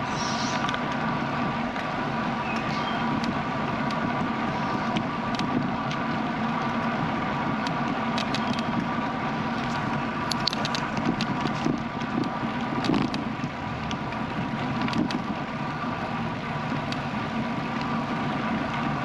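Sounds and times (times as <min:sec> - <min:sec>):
bicycle tyre road noise: 0:00.0 - 0:19.0
sharp ticks and rattles: 0:02.5 - 0:15.5.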